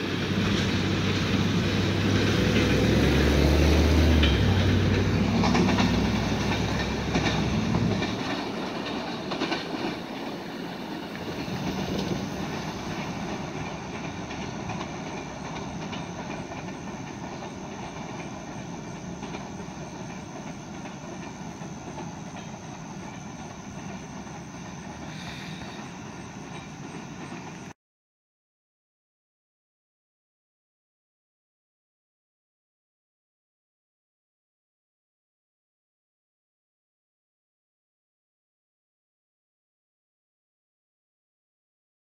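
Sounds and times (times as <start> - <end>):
heavy train rumble: 0.0 - 27.8
train wheels clattering over joints: 0.0 - 27.8.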